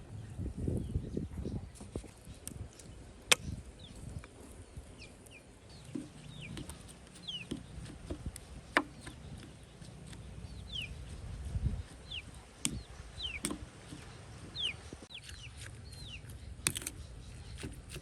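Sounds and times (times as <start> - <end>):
chicks peeping: 5.7 - 17.6.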